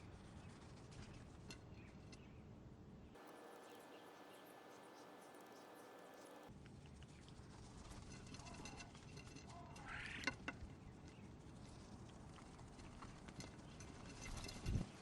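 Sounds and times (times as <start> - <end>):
birds chirping: 3.2 - 6.5.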